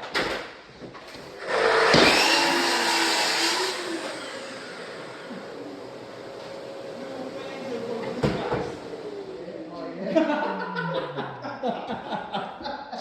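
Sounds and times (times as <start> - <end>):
motor-driven tool whirring: 1.4 - 5.5.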